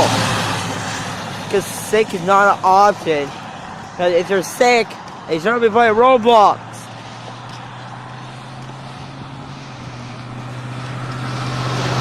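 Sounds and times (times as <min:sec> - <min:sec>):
motorcycle engine drone: 0:00.0 - 0:12.0
tyre hiss on wet road: 0:06.9 - 0:12.0.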